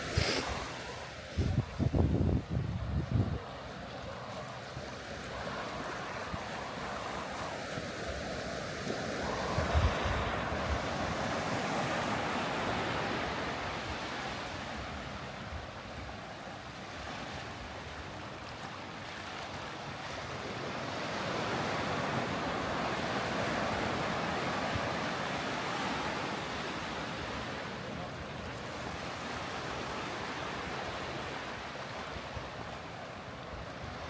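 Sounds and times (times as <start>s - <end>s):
sea surf washing on beach: 0.0s - 34.0s.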